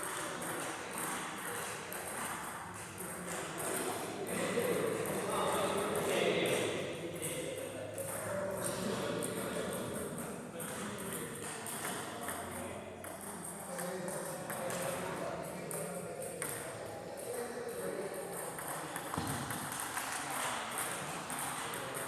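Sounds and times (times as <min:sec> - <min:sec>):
chatter of voices: 0:03.6 - 0:11.4.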